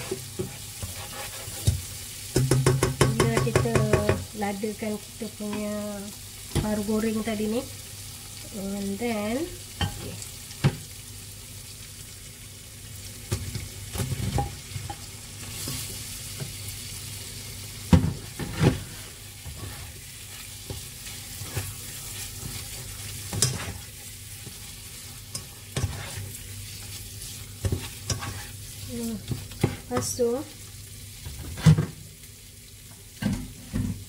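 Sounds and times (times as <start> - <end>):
spatula scraping and knocking pot: 0.0 - 4.3, 18.0 - 28.6, 29.2 - 30.2
chili paste sizzling in a pot: 0.0 - 34.0.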